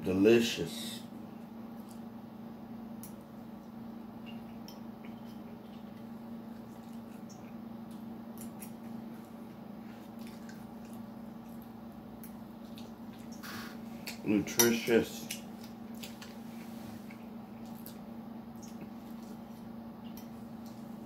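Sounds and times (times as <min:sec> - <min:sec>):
steady low hum: 0:00.0 - 0:21.0
wet chewing: 0:04.3 - 0:14.2, 0:15.2 - 0:20.9.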